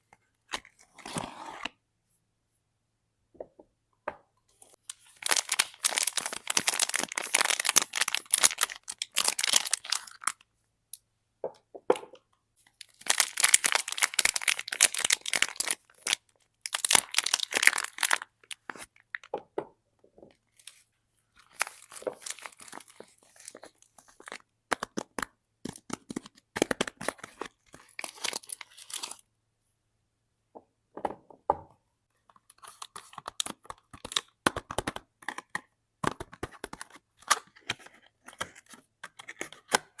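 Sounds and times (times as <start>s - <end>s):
packaging torn and crinkled: 5.0s - 10.4s, 12.9s - 18.7s, 21.6s - 23.7s, 26.9s - 29.2s.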